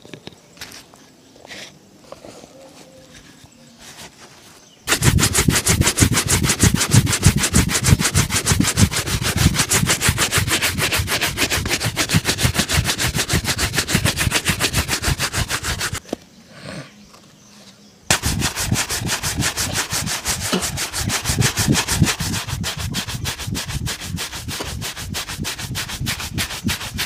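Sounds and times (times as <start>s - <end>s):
rubbing strokes on a shoe: 3.8s - 16.0s, 18.1s - 27.0s.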